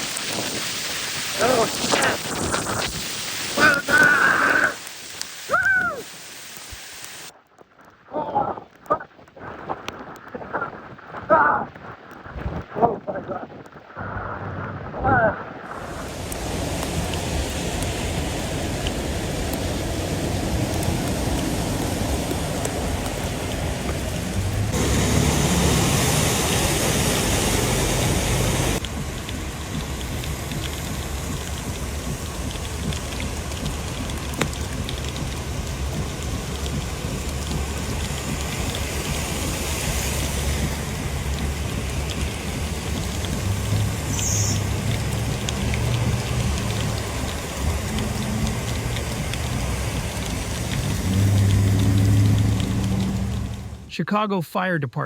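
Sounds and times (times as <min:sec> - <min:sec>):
heavy rain: 0:00.0 - 0:53.9
running floodwater: 0:00.0 - 0:53.9
water drops pattering: 0:28.6 - 0:53.8.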